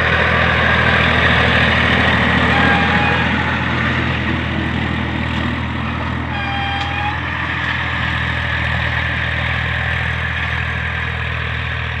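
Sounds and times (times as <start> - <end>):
tractor diesel engine running: 0.0 - 12.0
brief high tone: 2.5 - 3.4.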